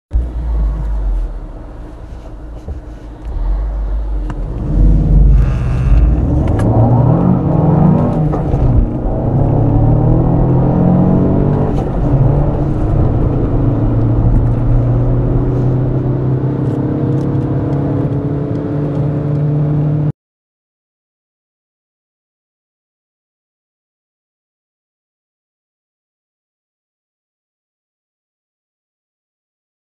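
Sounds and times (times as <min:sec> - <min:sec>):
car engines accelerating hard: 0:00.2 - 0:20.1.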